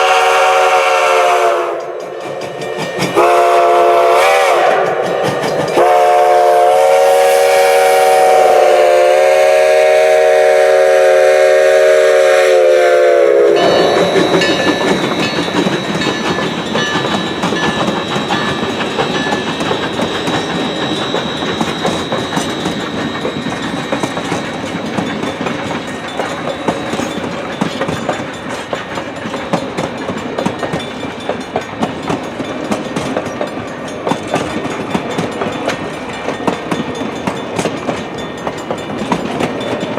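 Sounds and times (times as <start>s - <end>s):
steam locomotive whistle: 0.0s - 25.1s
train wheels clacking on rails: 0.0s - 39.9s.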